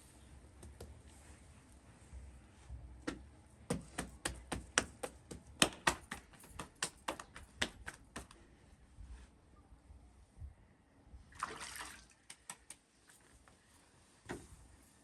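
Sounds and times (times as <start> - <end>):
sharp taps: 3.1 - 8.4.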